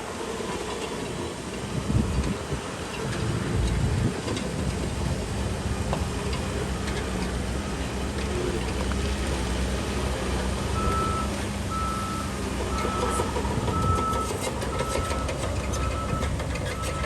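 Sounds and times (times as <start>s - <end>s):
diesel engine running: 0.0s - 17.0s
back-up alarm beeping: 10.8s - 17.0s.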